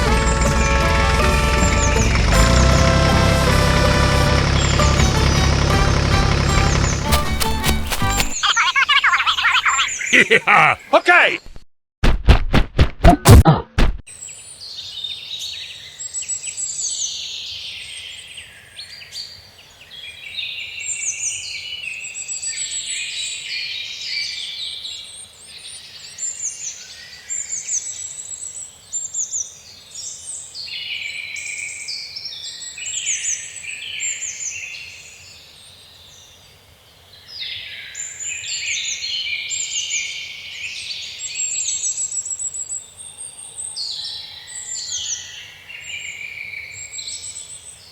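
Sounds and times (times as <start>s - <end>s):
birds chirping and trilling: 6.3s - 11.1s.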